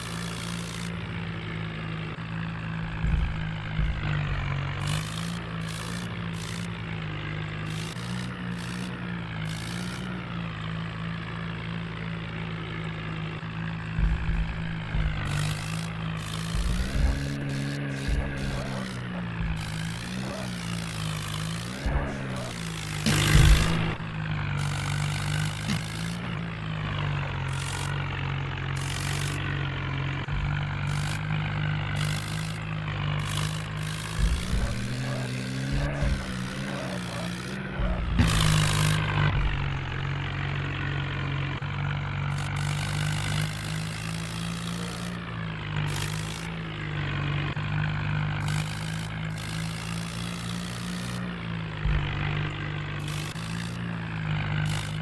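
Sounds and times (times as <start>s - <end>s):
engine clatter: 0.0s - 55.0s
tractor diesel engine running: 0.0s - 55.0s
scattered knocks: 2.6s - 10.2s, 11.9s - 40.7s, 48.4s - 55.0s.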